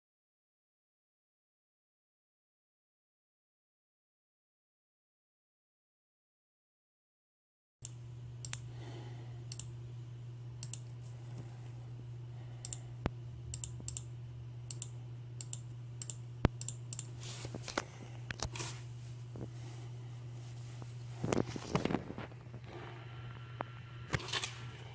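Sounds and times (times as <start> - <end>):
steady low hum: 7.8 - 24.9.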